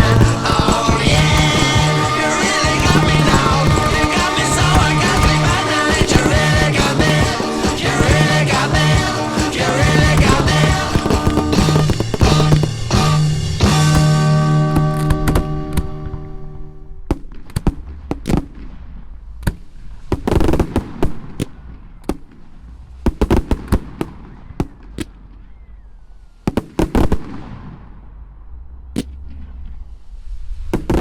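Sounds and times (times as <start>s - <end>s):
fireworks bangs and crackles: 0.0s - 16.2s, 17.0s - 25.5s, 26.3s - 28.2s, 30.7s - 31.0s
music: 0.0s - 16.8s.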